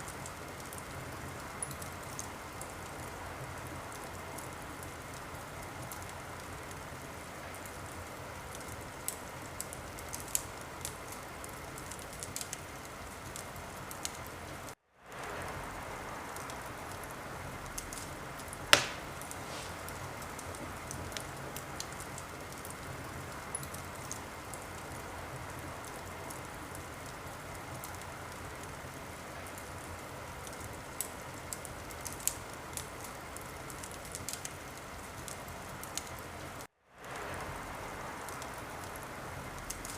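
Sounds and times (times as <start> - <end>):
wood fire crackling: 0.0 - 39.9
loud fire pop: 18.7 - 20.6.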